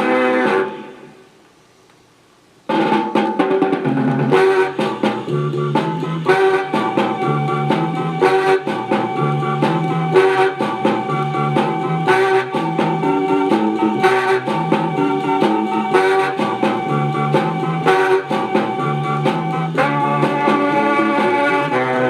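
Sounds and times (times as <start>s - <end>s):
instrumental music with drums and horns: 0.0s - 1.1s, 2.7s - 22.0s
record hiss: 0.0s - 22.0s.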